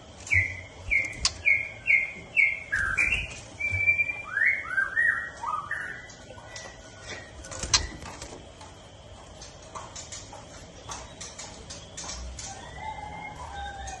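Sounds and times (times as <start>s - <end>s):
bird clicks and chirps: 0.2s - 1.7s.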